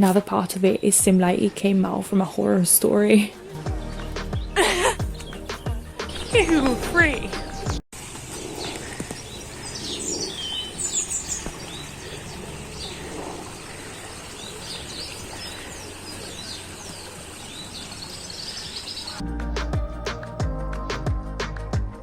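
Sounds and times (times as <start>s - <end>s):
birds chirping and singing: 0.4s - 21.2s
outdoor background hiss: 6.5s - 19.4s.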